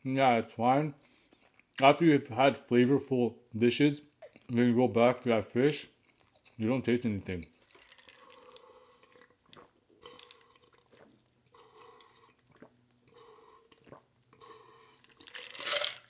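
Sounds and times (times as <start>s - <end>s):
chewing and smacking food: 1.1s - 1.8s, 5.9s - 6.8s, 7.4s - 16.0s.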